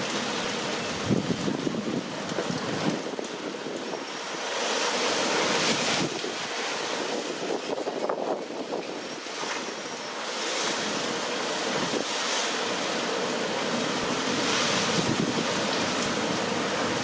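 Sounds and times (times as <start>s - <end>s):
wind buffeting microphone: 0.9s - 4.2s, 5.4s - 9.9s, 14.0s - 16.0s
strong winds gusting: 1.0s - 9.9s, 13.9s - 17.0s.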